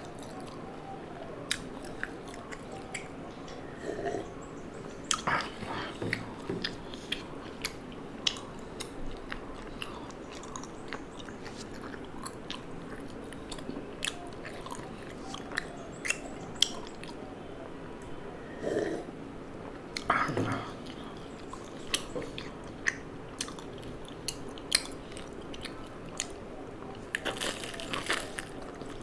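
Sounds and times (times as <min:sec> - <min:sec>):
person eating crunchy food: 0:05.1 - 0:17.2, 0:20.0 - 0:29.0.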